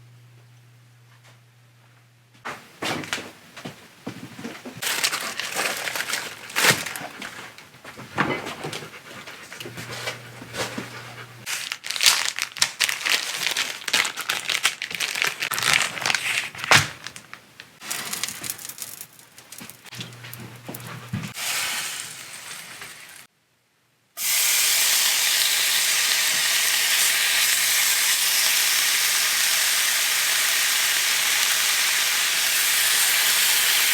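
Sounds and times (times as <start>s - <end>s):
rustling and scraping: 2.4s - 12.4s, 13.1s - 21.4s.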